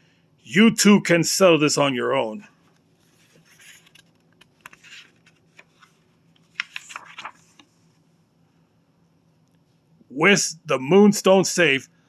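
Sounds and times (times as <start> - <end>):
book page rustling: 2.7 - 8.0.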